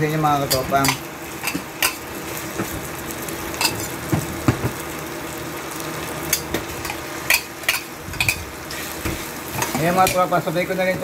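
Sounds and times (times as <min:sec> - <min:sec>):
chicken sizzling in butter: 0:00.0 - 0:11.0.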